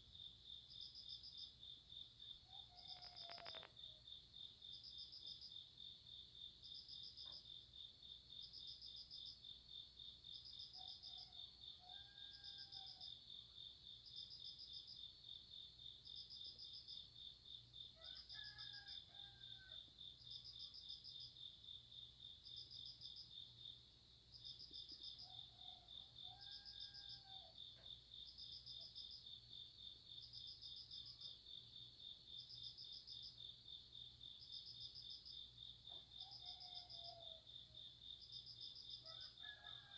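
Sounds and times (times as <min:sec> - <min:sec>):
faint rooster crowing: 0:02.4 - 0:04.2, 0:10.7 - 0:13.2, 0:18.0 - 0:20.0, 0:25.2 - 0:28.0, 0:35.9 - 0:37.9, 0:39.0 - 0:39.9
crickets trilling: 0:02.7 - 0:03.9
insect chirping in short bursts: 0:02.8 - 0:03.9.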